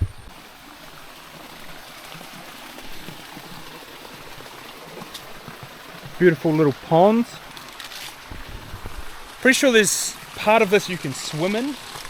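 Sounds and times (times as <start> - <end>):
spring water flowing: 0.0 - 12.0.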